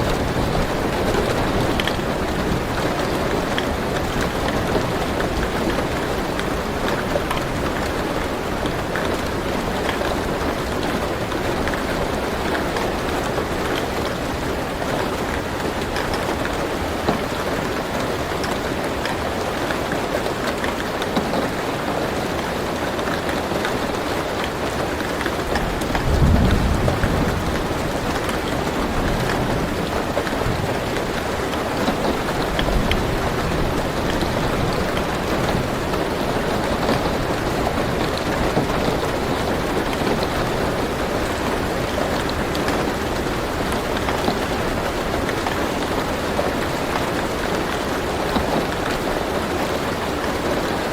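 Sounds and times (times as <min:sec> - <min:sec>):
rain on car roof: 0:00.0 - 0:50.9
thunder rumbling: 0:25.6 - 0:46.6.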